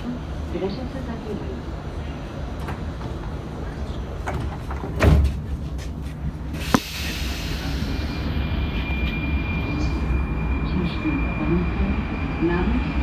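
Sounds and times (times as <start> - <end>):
train low rumble: 0.0 - 13.0
train doors shutting thud: 4.2 - 5.6
train high whine: 6.4 - 13.0.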